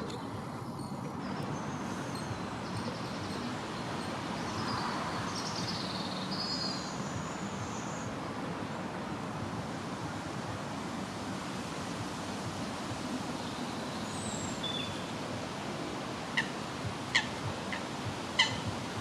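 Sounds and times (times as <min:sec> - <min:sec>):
steady rushing noise: 0:07.0 - 0:19.0.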